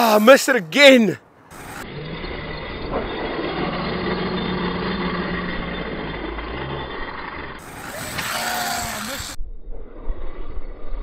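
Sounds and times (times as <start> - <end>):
electric rc truck motor: 1.5 - 9.4
tyres on loose dirt: 1.5 - 9.4.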